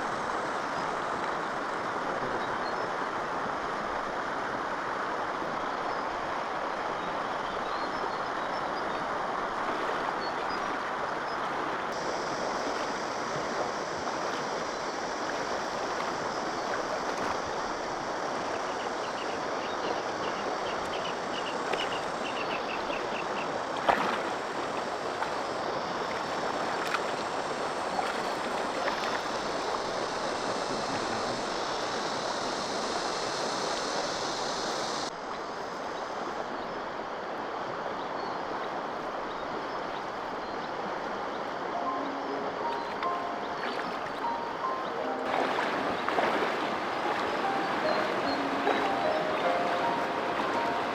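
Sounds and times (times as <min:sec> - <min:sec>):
flowing stream water: 0:00.0 - 0:50.9
high chirps: 0:41.8 - 0:50.9.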